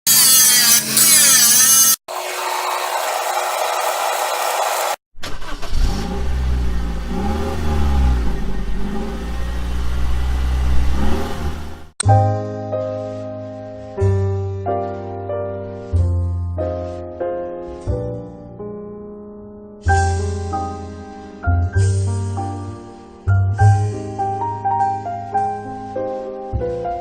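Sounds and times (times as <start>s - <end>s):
car engine revving: 3.3s - 11.9s.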